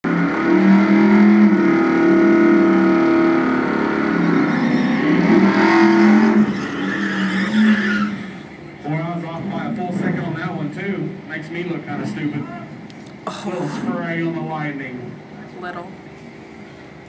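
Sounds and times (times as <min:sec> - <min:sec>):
pickup truck engine revving: 0:00.0 - 0:10.8.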